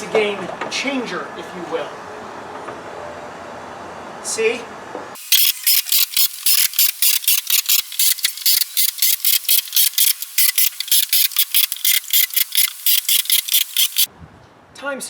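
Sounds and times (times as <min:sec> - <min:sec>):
screw gun driving screws into wood: 0:05.2 - 0:14.1.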